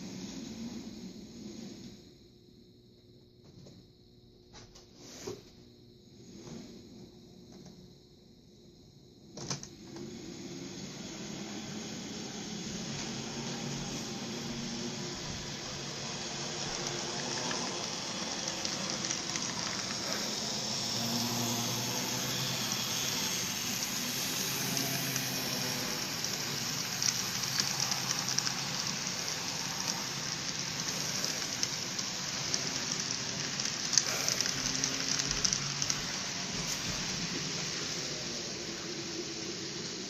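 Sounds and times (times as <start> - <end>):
trains rushing: 10.0 - 40.0.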